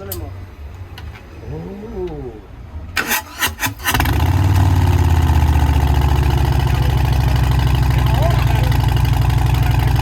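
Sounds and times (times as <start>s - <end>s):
motorcycle engine cranking: 3.0s - 5.5s
motorcycle engine idling: 4.0s - 10.0s.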